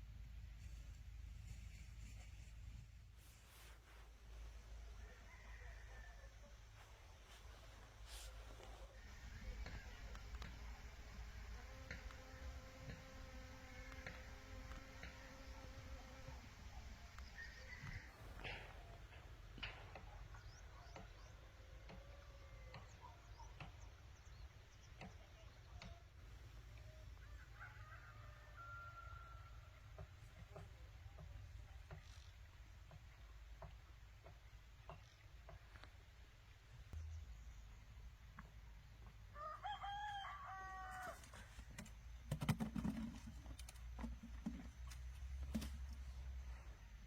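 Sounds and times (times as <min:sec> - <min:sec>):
rooster crowing: 0:04.9 - 0:06.6, 0:17.2 - 0:18.4, 0:27.2 - 0:29.8, 0:39.3 - 0:41.4.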